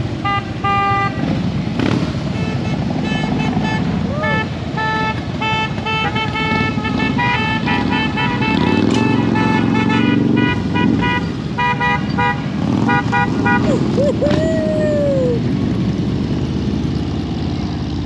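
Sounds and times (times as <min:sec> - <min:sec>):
motorcycle engines idling: 0:00.0 - 0:18.0
vehicle horns beeping: 0:00.2 - 0:13.8.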